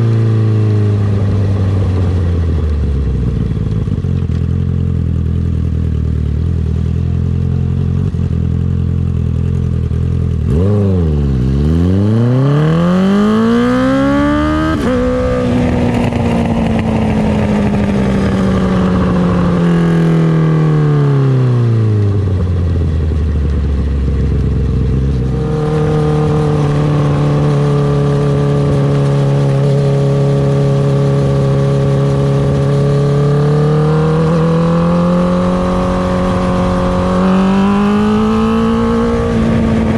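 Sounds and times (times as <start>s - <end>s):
motorcycle engine accelerating: 0.0s - 39.9s
gear change: 23.4s - 33.4s.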